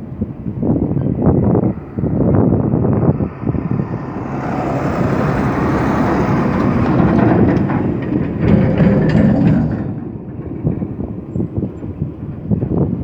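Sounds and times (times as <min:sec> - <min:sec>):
excavator engine under load: 0:00.4 - 0:13.0
machinery clanks and knocks: 0:03.7 - 0:13.0.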